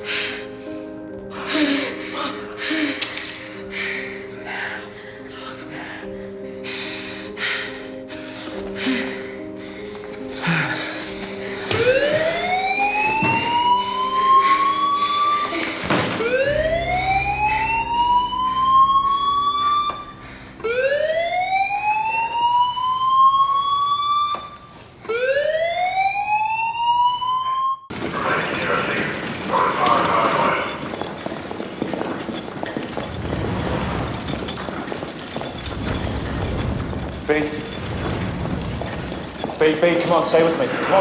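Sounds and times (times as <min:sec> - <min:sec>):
siren wailing: 0:11.8 - 0:15.5, 0:16.2 - 0:30.8.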